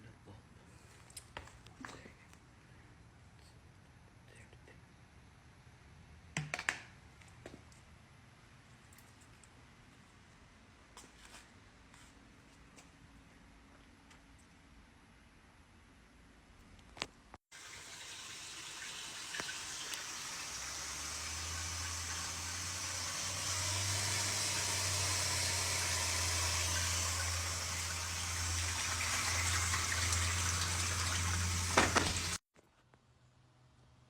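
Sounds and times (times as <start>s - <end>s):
water rushing into washing machine: 17.5s - 32.4s.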